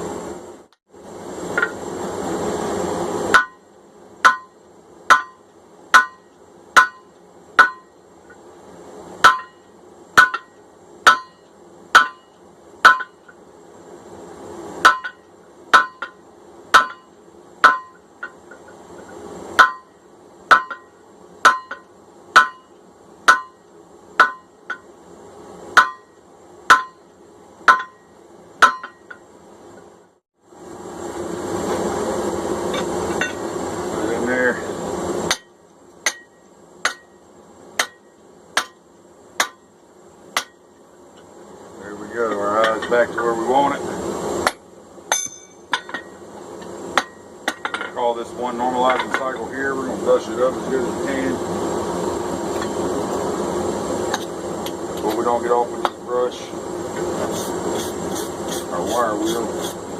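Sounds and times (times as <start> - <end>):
steady rushing noise: 0.0 - 26.1, 27.6 - 37.1, 40.3 - 59.9
hammer striking hot steel on anvil: 1.5 - 1.8, 3.3 - 8.4, 9.2 - 13.4, 14.8 - 24.9, 25.7 - 29.3, 32.7 - 33.4, 35.2 - 37.2, 37.8 - 38.8, 39.4 - 39.7, 40.3 - 40.7, 42.3 - 43.2, 44.4 - 46.2, 46.9 - 48.0, 48.7 - 49.5, 55.8 - 56.0.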